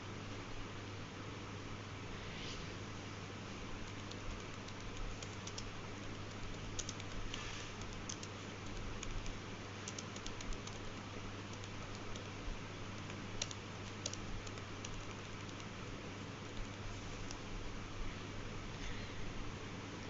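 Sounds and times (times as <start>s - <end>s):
background hiss: 1.3s - 20.0s.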